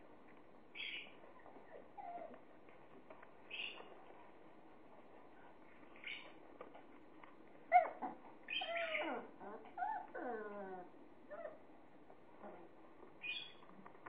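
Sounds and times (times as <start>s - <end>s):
puppies whimpering and squealing: 7.7s - 11.6s.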